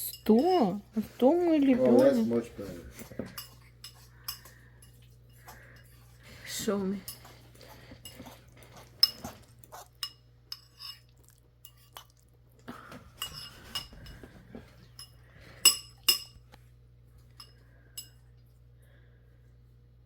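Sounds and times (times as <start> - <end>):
cutlery clinking against dishes: 1.7 - 6.2, 7.0 - 12.1, 12.9 - 16.5, 17.3 - 18.2.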